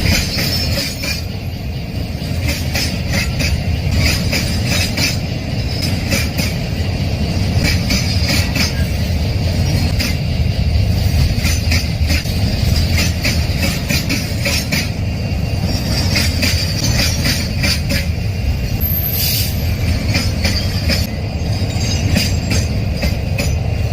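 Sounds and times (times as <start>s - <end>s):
train wagons rumbling: 0.0s - 23.9s.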